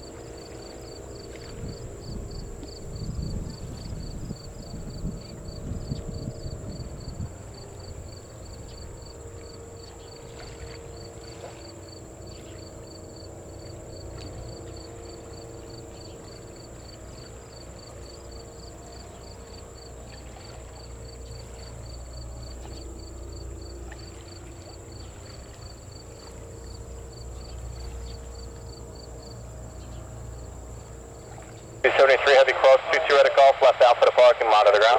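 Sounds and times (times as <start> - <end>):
insects chirping: 0.0 - 34.9
distant jet engines rumbling: 29.9 - 34.9.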